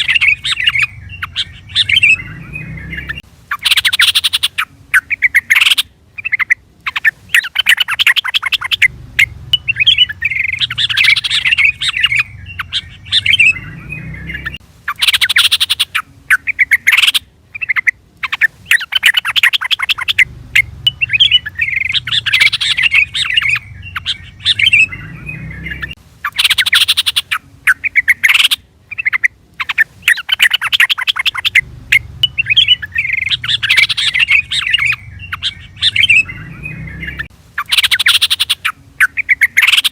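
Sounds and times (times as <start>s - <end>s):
faint low rumble: 0.0s - 3.6s, 8.5s - 15.0s, 17.4s - 26.4s, 31.1s - 37.7s
bulbul chattering calls: 0.0s - 39.9s.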